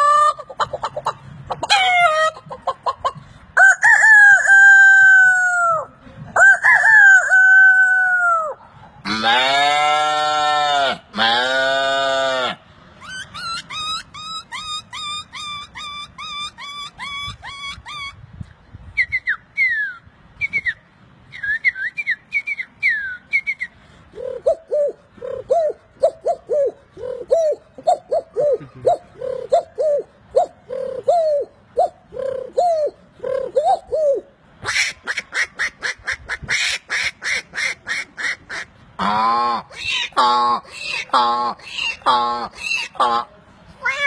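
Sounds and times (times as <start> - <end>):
whistled bird chirps: 19.0 - 23.8
dove-like cooing: 24.1 - 34.4.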